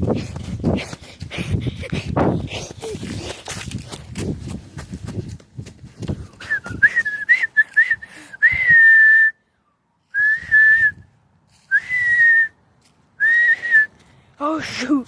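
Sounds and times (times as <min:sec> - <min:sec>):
person whistling: 0:06.4 - 0:09.4, 0:10.1 - 0:11.0, 0:11.7 - 0:12.6, 0:13.2 - 0:13.9.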